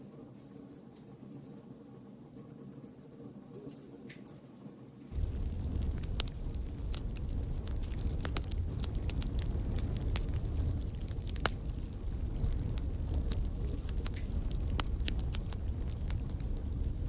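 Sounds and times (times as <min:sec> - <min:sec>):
pops and snaps of fire: 0:05.1 - 0:17.0
wood fire crackling: 0:05.1 - 0:17.0.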